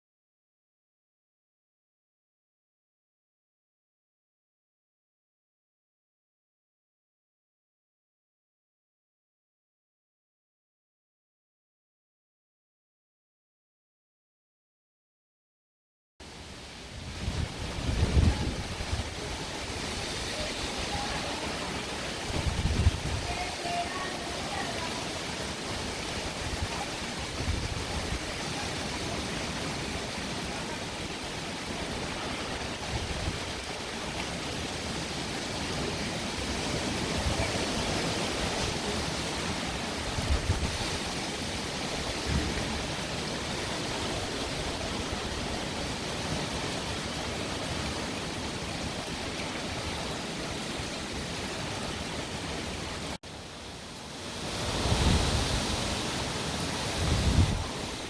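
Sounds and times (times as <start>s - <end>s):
rain and wind hissing: 16.2s - 58.0s.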